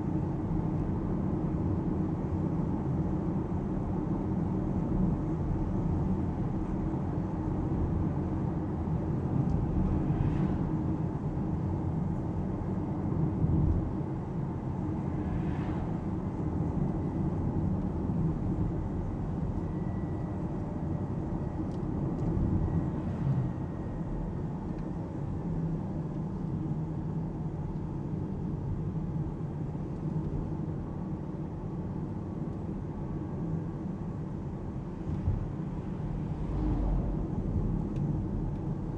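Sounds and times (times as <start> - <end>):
car road and tyre rumble: 0.0 - 38.9.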